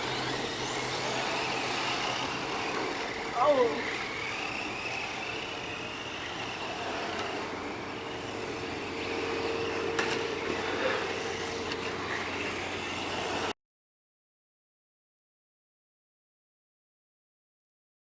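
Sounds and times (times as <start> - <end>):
electric rc car motor whine: 0.0 - 13.6.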